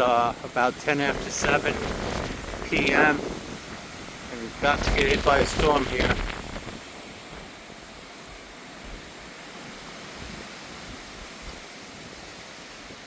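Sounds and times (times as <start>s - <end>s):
wind rushing: 0.0s - 7.5s
wind buffeting microphone: 0.0s - 13.0s.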